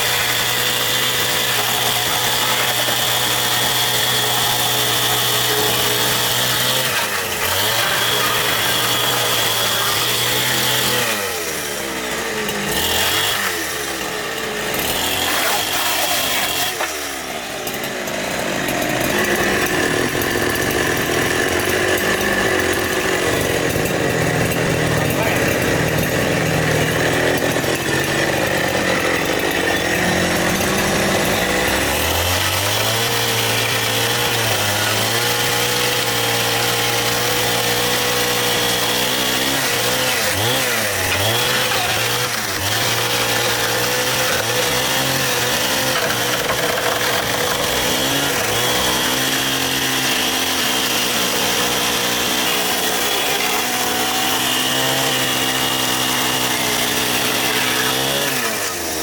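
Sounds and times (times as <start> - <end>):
chainsaw running: 0.0 - 59.0.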